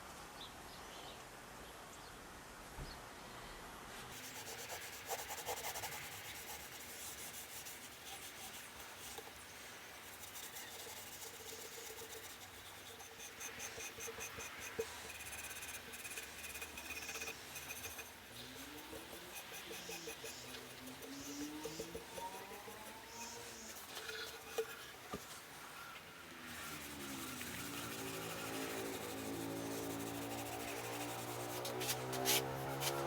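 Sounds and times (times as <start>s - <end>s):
hand scraping and rubbing: 4.1s - 33.0s.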